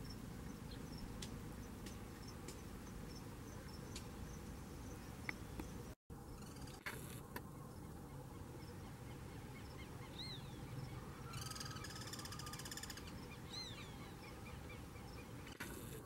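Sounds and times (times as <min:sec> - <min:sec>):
bird chirps: 0:07.5 - 0:15.6.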